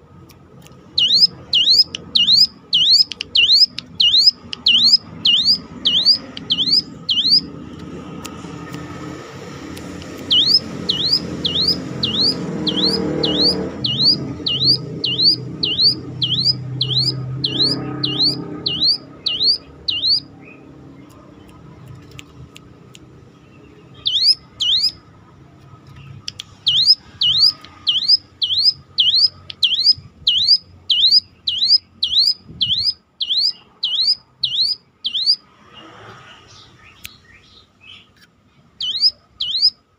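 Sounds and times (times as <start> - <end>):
bird calling siren-like whistles: 1.0 - 7.5, 10.3 - 20.3, 24.0 - 25.0, 26.7 - 35.4, 38.8 - 39.8.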